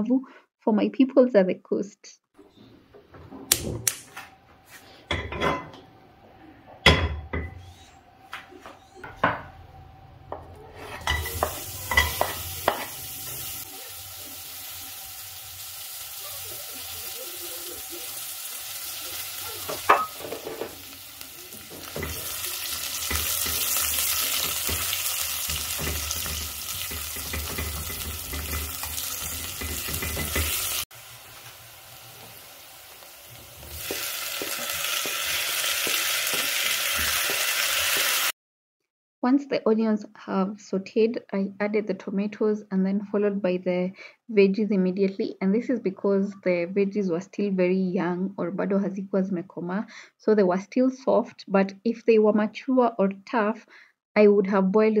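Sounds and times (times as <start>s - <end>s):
cookware clattering: 5.1s - 5.8s, 10.8s - 13.4s, 19.6s - 30.8s
oil sizzling in a pan: 11.0s - 38.4s
utensil knocking against pan: 25.5s - 30.6s.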